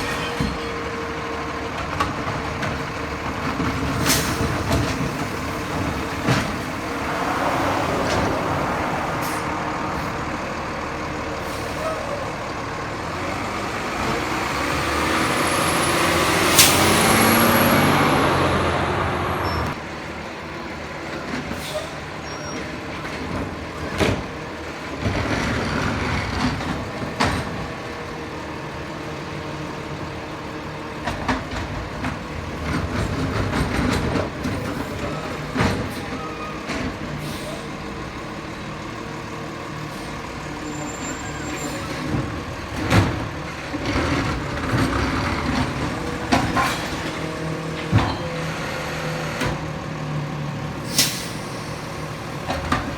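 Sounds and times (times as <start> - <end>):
garbage truck diesel engine: 0.0 - 52.9
air brake hisses: 21.5 - 22.0, 37.1 - 37.8, 50.8 - 52.4.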